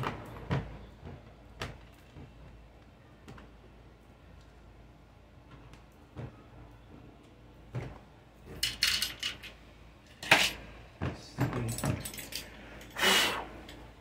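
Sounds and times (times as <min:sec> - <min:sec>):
tools knocking and clinking: 0:08.5 - 0:12.9.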